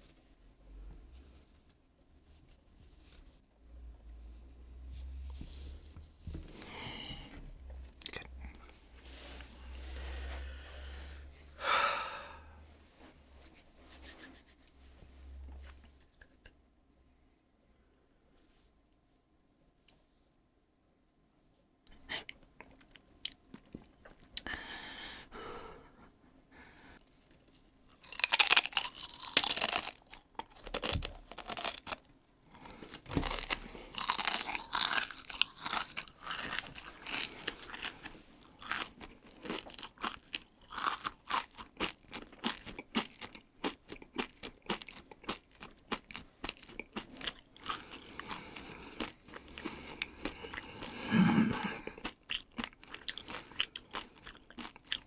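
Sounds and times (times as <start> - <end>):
chip crunching: 27.9 - 55.0.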